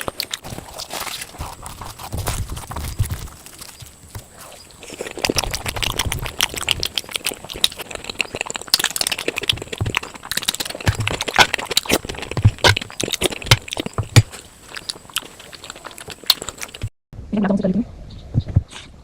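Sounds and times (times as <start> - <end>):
wet chewing: 0.0 - 16.9
mouth clicks: 4.2 - 16.9.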